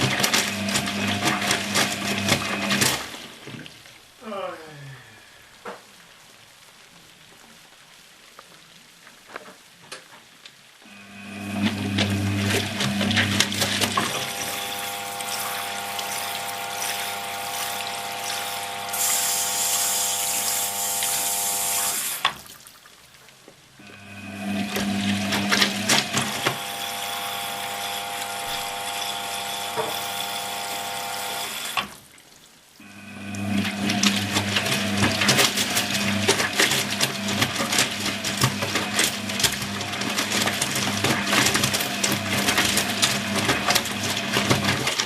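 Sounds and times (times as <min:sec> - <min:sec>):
washing machine motor humming: 0:00.0 - 0:03.6, 0:10.9 - 0:22.3, 0:23.8 - 0:31.9, 0:32.8 - 0:45.0
high hiss: 0:18.9 - 0:22.3.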